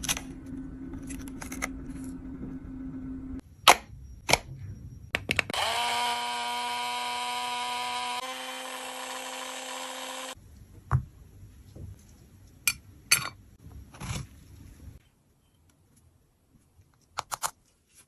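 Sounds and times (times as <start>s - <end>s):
small electric motor whirring: 5.5s - 10.4s.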